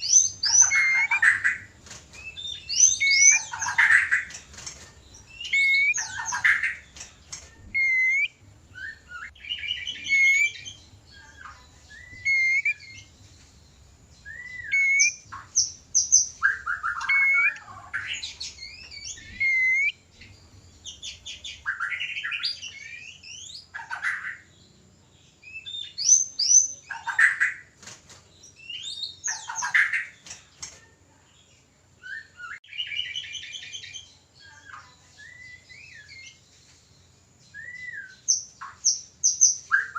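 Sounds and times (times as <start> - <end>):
harsh bird chattering calls: 0.0 - 8.3, 9.1 - 13.0, 14.5 - 20.0, 21.1 - 24.5
birds whistling and trilling: 0.0 - 39.9.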